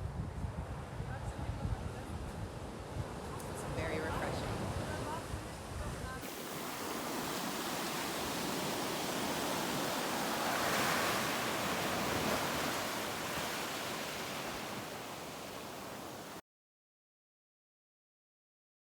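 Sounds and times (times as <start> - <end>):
water rushing: 6.2 - 16.4.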